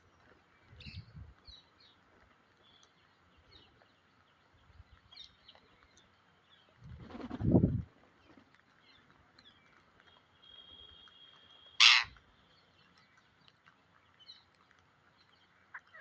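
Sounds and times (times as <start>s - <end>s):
parakeet screech: 11.8s - 12.1s.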